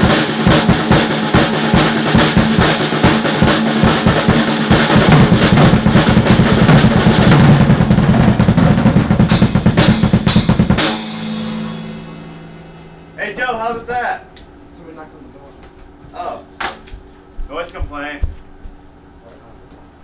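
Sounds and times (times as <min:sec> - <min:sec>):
cymbal crashes: 0:00.0 - 0:14.1
fast drum kit playing: 0:00.0 - 0:14.1, 0:17.4 - 0:18.8.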